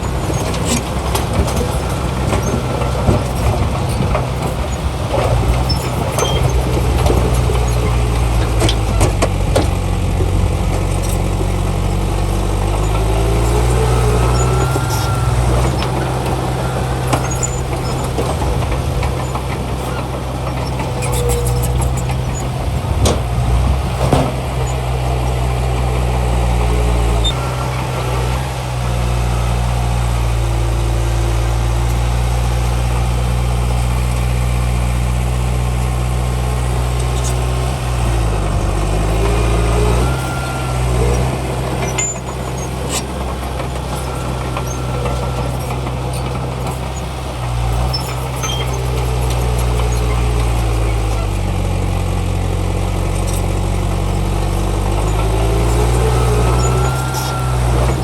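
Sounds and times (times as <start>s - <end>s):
heavy machinery engine drone: 0.0s - 58.0s
metal clanks: 14.3s - 25.8s
brief squeaks: 20.6s - 22.5s, 41.9s - 43.1s, 47.8s - 51.4s, 55.1s - 58.0s.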